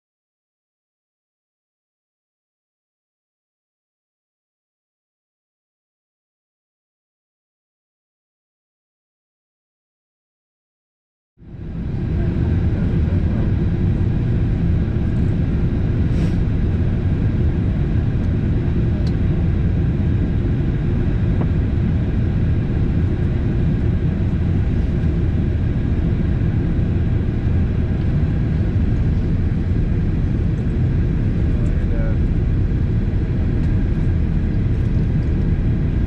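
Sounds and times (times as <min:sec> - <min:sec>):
airplane engines in cabin: 0:11.4 - 0:36.0.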